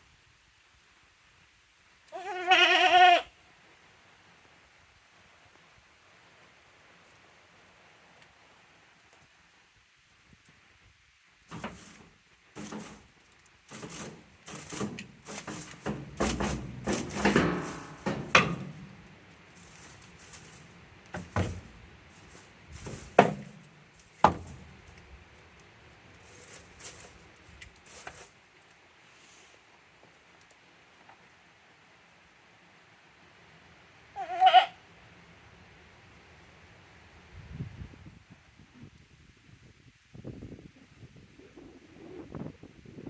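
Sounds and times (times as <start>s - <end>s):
goat horns scraping and rattling: 11.5s - 28.6s
sharp knocks: 13.7s - 19.1s, 22.8s - 24.7s.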